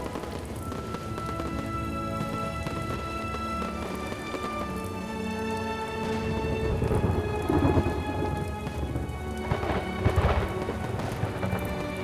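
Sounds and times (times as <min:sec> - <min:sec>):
fireworks crackling: 0:00.0 - 0:12.0
music playing: 0:00.0 - 0:12.0.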